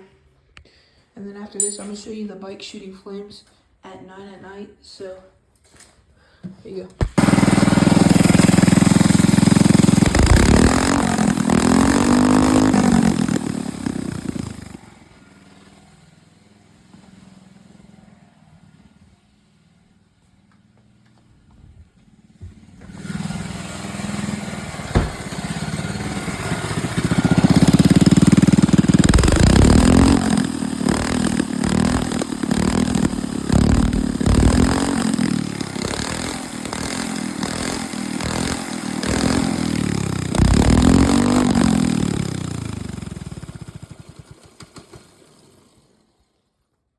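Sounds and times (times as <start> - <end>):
exhaust pops and crackles: 7.0 - 14.7, 24.7 - 42.2
minibike engine revving: 7.1 - 20.8, 22.1 - 45.7.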